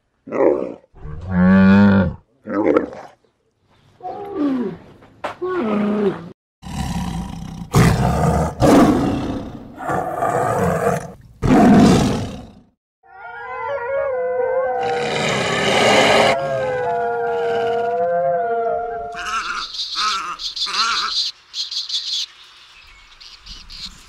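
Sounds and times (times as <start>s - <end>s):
lion roaring: 5.4s - 12.7s, 13.6s - 19.3s
wolves howling: 13.1s - 19.6s.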